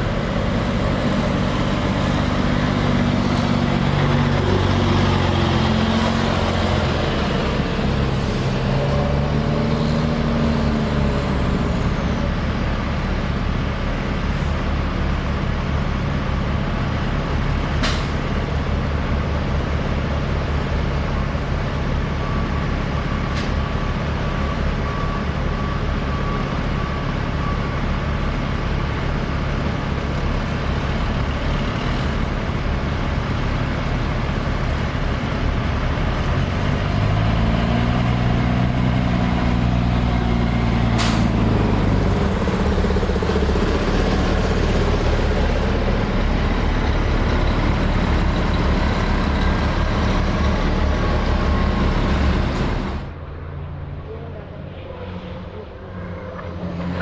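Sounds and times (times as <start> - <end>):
truck diesel engines droning: 0.0 - 57.0
truck engine note climbing: 0.0 - 57.0.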